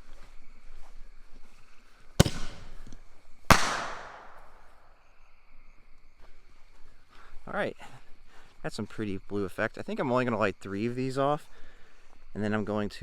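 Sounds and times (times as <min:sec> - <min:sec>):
firework mortar launch bang: 0:02.2 - 0:04.8
firework shell bursting overhead: 0:02.2 - 0:05.0.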